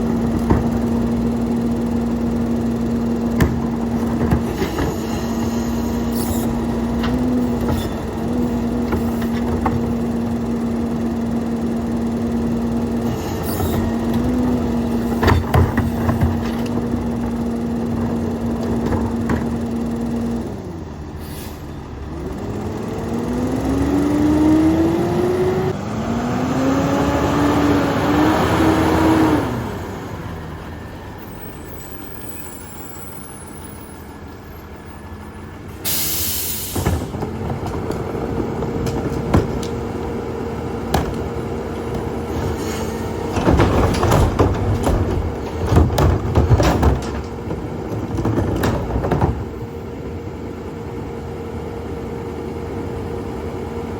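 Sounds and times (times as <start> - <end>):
garbage truck engine and hydraulics: 0.0 - 53.9
engine revving: 22.1 - 30.3
air release hiss: 35.8 - 36.9.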